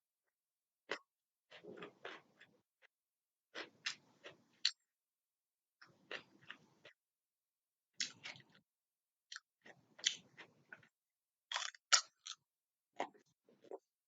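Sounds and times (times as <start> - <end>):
person chewing crunchy food: 0.9 - 2.9, 3.5 - 4.8, 5.8 - 7.0, 7.9 - 8.7, 9.3 - 13.9.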